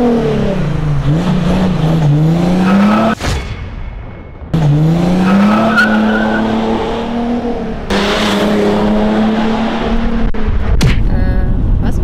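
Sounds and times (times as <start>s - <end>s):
diesel car accelerating hard: 0.0s - 3.2s, 4.6s - 10.7s.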